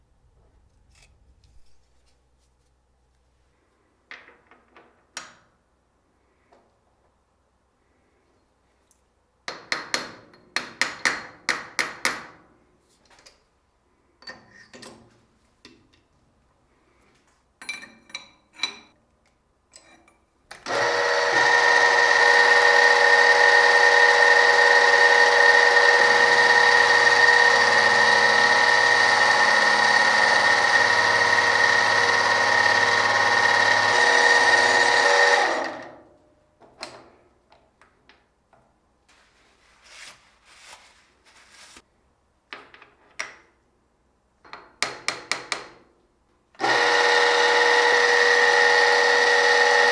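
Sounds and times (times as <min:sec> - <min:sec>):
power tool motor whine: 0:20.6 - 0:36.0, 0:46.6 - 0:49.9.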